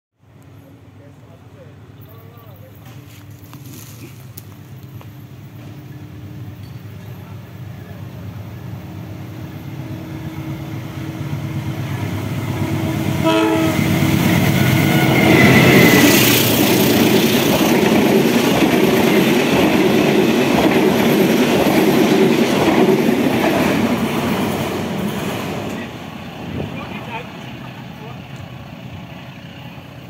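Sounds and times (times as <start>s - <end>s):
diesel train approaching: 0.2s - 30.0s
train horn: 12.8s - 16.2s.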